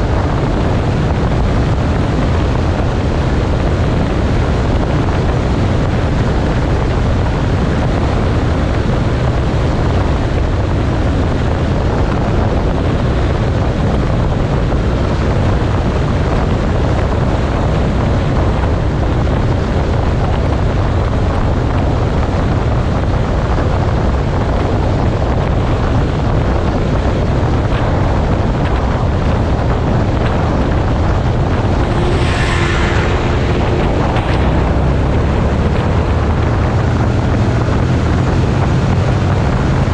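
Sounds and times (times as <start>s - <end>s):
motorcycle running and road noise: 0.0s - 39.9s
wind buffeting microphone: 0.0s - 39.9s.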